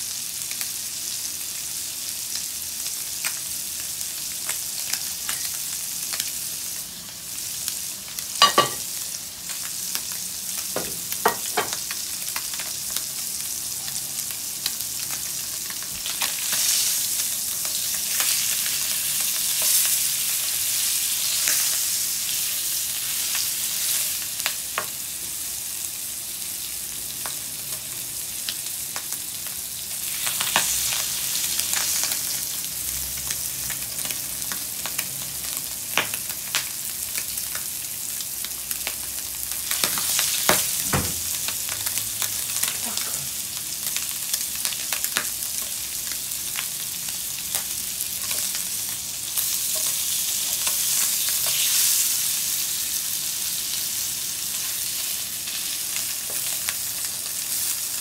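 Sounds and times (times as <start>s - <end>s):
fish sizzling in oil: 0.0s - 58.0s
utensils knocking against pan: 8.4s - 8.9s.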